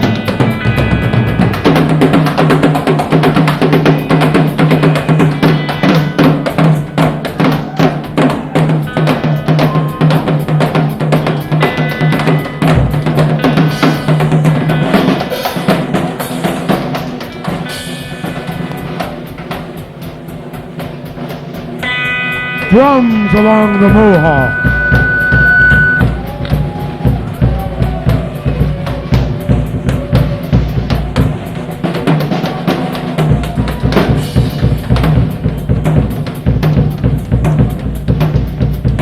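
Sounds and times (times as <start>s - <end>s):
live rock band playing: 0.0s - 20.1s, 20.7s - 39.0s
held low note: 21.8s - 27.0s.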